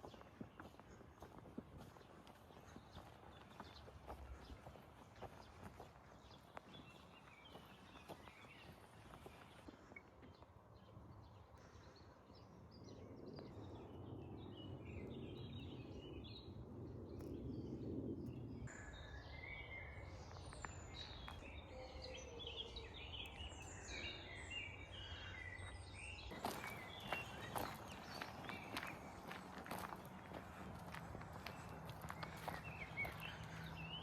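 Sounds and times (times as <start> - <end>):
low outdoor rumble: 10.6 - 34.0
birds chirping and singing: 10.9 - 34.0
footsteps: 26.3 - 34.0.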